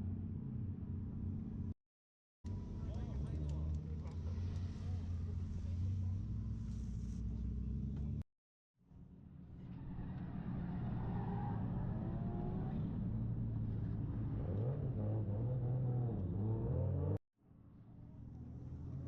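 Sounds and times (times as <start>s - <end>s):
vehicle engine running: 2.5s - 8.2s.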